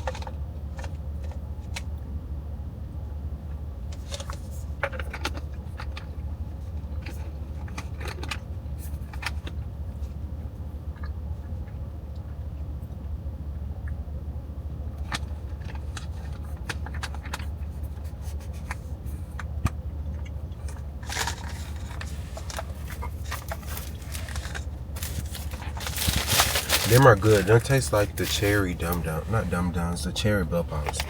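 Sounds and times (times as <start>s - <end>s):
low hum inside car cabin: 0.0s - 31.0s
crinkling rustle: 20.7s - 29.7s.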